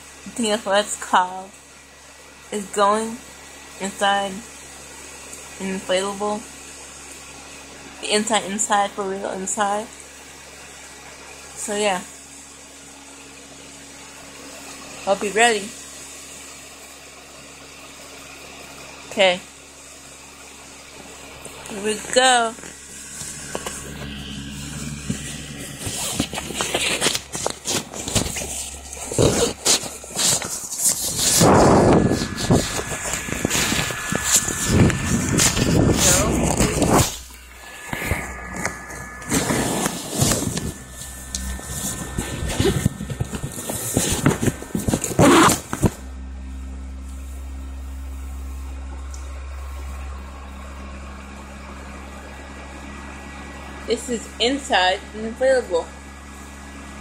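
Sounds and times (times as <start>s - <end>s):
blower fan humming: 0.0s - 57.0s
fabric rustling and scraping: 22.7s - 46.1s
inflatable plastic toy crinkling: 25.8s - 34.4s.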